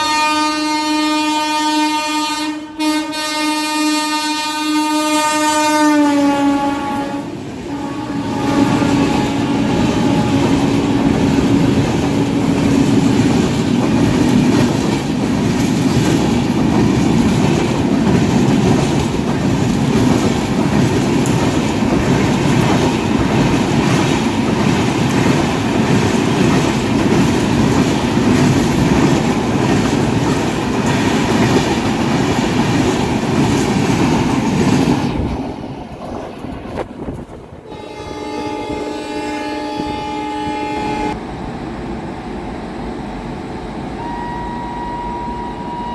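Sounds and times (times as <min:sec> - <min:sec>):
train wheels clattering over rail joints: 0:07.4 - 0:37.6.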